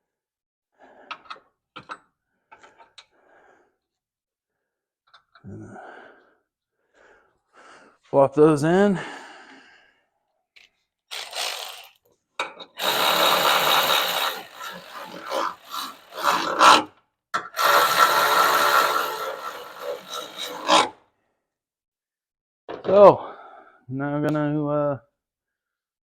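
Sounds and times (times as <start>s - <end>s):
power tool whining: 11.1s - 12.0s, 12.8s - 20.9s.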